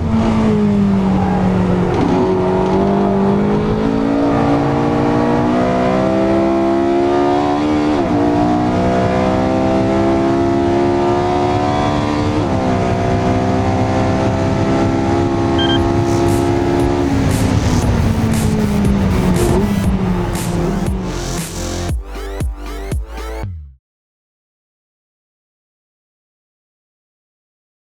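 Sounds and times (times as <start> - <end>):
sports car engine accelerating: 0.0 - 23.6
gear upshifts: 15.6 - 21.7.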